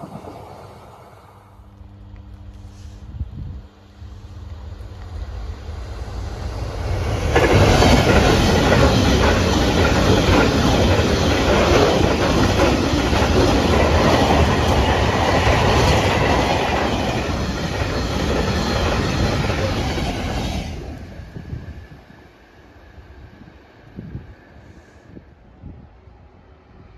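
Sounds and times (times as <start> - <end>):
freight train wheels clattering: 4.4 - 20.9.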